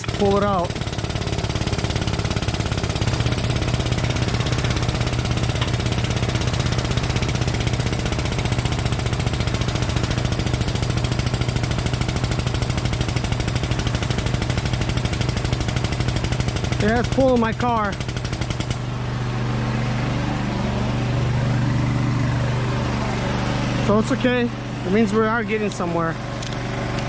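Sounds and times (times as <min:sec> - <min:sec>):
machine pulsing rattle: 0:00.0 - 0:17.2
machine low hum: 0:00.0 - 0:27.0.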